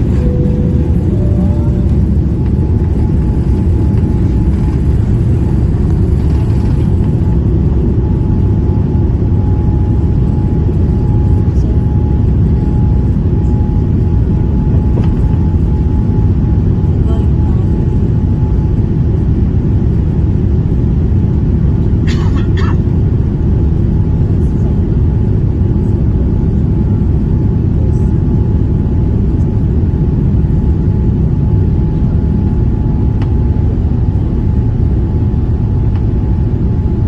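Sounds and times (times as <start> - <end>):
faint steady whine: 0.0 - 20.0
jet engines and airflow rumble: 0.0 - 37.0.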